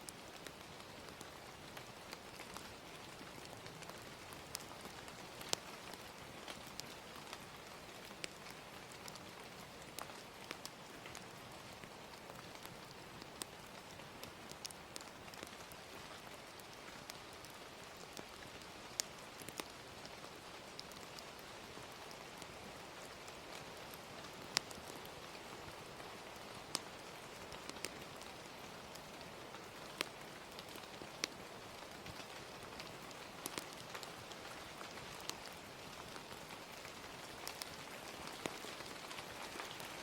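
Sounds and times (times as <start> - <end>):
gentle rain hissing: 0.0 - 40.0
fire popping: 0.1 - 15.8, 16.5 - 20.2, 23.8 - 25.8, 26.6 - 39.9.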